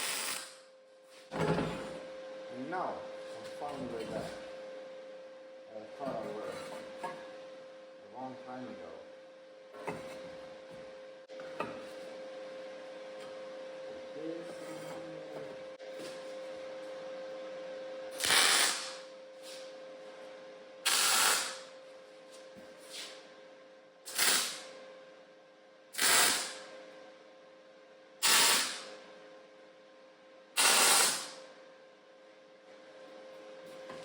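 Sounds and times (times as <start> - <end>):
hissing tack welds: 0.0 - 0.6, 18.2 - 19.0, 20.8 - 21.7, 24.1 - 24.7, 26.0 - 26.6, 28.2 - 28.9, 30.6 - 31.4
steady welder hum: 0.0 - 32.6.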